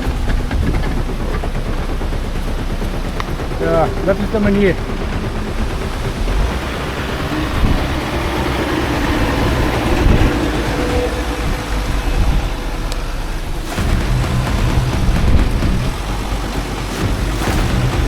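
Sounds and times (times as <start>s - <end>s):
engine and road rumble: 0.0s - 18.0s
wind rushing: 0.0s - 18.0s.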